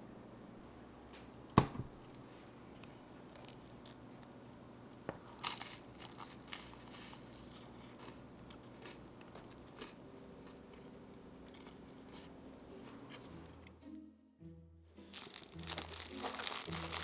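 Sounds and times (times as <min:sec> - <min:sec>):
dry material crinkling by hand: 0:02.8 - 0:09.9, 0:15.1 - 0:17.0.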